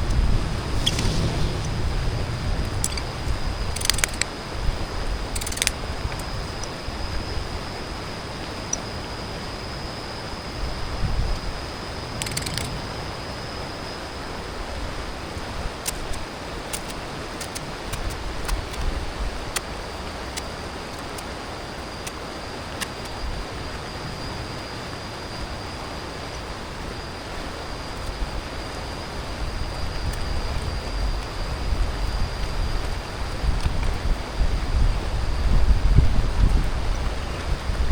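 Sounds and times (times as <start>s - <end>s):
wind gusts on microphone: 0.0s - 8.3s, 27.8s - 37.9s.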